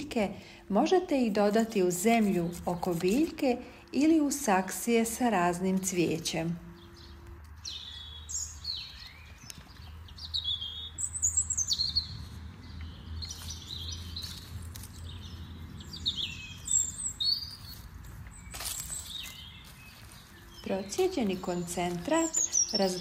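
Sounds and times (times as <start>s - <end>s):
songbirds chirping: 0.0s - 23.0s.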